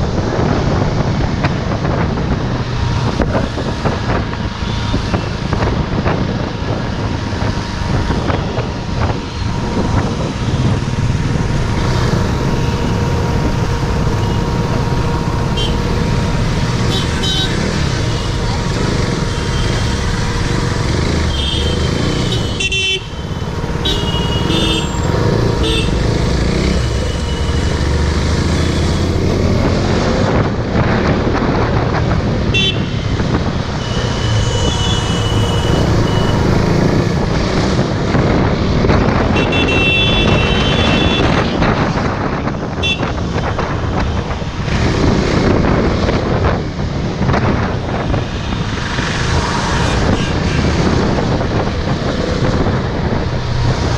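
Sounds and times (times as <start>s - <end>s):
motorcycle engine and road noise: 0.0s - 53.9s
vehicle horns tooting: 12.5s - 28.0s, 32.4s - 36.8s, 39.2s - 41.7s, 42.8s - 43.5s, 49.7s - 50.8s.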